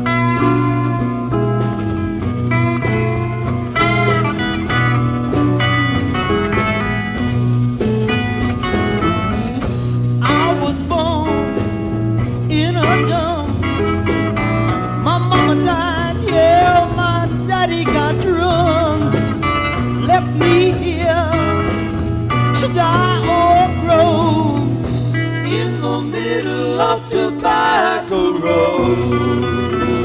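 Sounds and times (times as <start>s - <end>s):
rock band playing live: 0.0s - 30.0s
person singing with vibrato: 10.2s - 11.6s, 15.0s - 19.2s, 20.0s - 21.7s, 22.6s - 30.0s.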